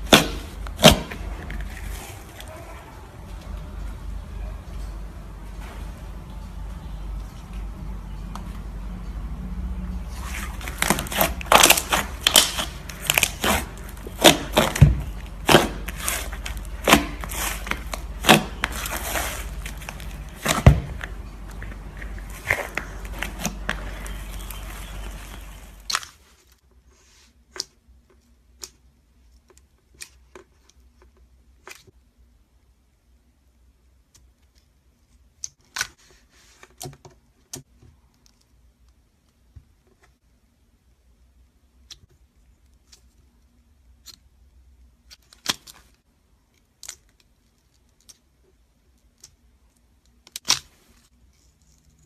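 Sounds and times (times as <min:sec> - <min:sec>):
slime popping and crackling: 0:00.0 - 0:02.0, 0:10.4 - 0:26.2.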